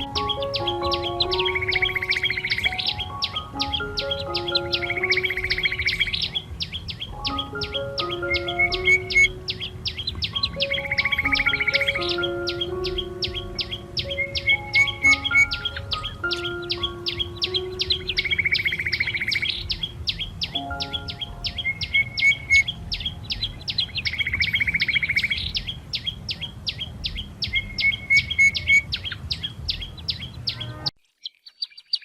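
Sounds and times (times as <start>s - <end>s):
background music: 0.0s - 30.9s
fast buzzing bird trill: 0.0s - 30.9s
small birds chirping: 0.0s - 32.0s.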